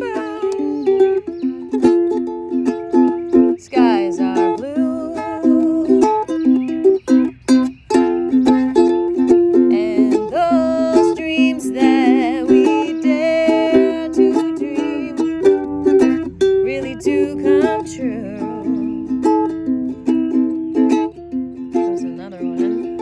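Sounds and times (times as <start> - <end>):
person singing wordless melody: 0.0 - 1.4, 3.5 - 6.6, 8.4 - 19.3, 21.8 - 23.0
strummed ukulele: 0.0 - 23.0.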